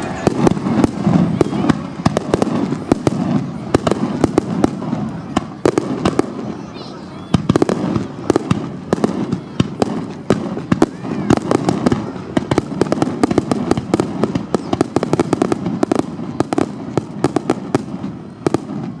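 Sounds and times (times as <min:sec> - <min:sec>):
background din: 0:00.0 - 0:01.7
fireworks bangs and crackles: 0:00.0 - 0:19.0.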